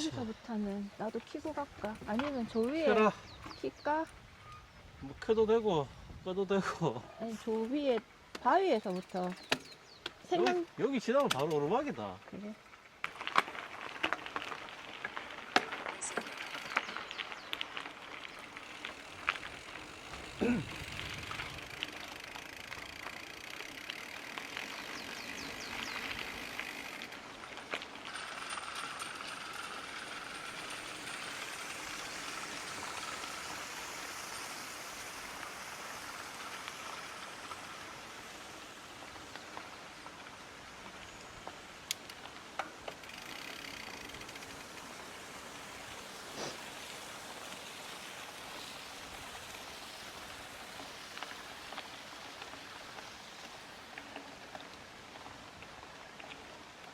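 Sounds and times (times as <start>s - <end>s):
bike tyre and trail noise: 0.0s - 56.9s
bike clicks and knocks: 7.6s - 11.7s, 13.0s - 33.6s, 40.8s - 44.9s.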